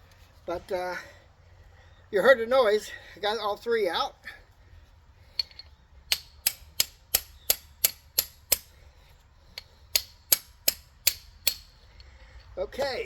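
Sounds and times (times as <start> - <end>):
socket ratchet clicking: 5.4 - 8.7, 9.9 - 11.8.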